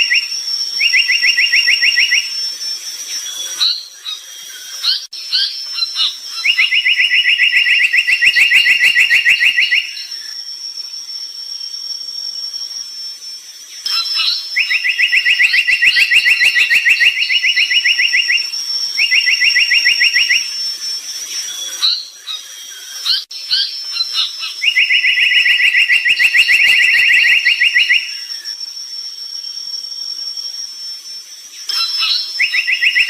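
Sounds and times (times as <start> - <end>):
bird trilling and chirping: 21.3 - 28.5, 31.6 - 33.0.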